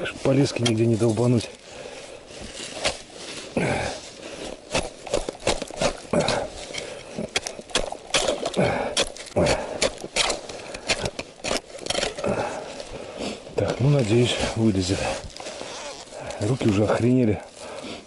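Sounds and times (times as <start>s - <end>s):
ice chisel striking ice: 4.7s - 12.3s.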